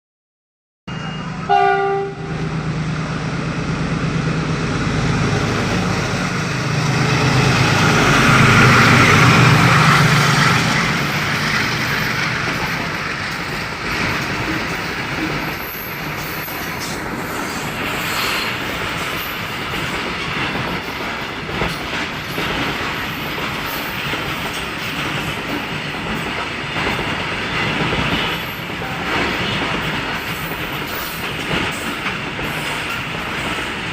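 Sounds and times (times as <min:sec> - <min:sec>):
train horn blast: 0:00.9 - 0:02.5
train running on rails: 0:00.9 - 0:33.9.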